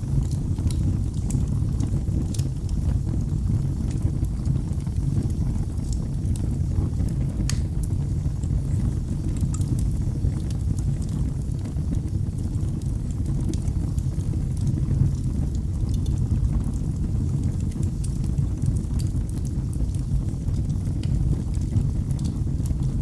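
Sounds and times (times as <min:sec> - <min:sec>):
fire crackles and pops: 0:00.0 - 0:23.0
rumble of flames: 0:00.0 - 0:23.0.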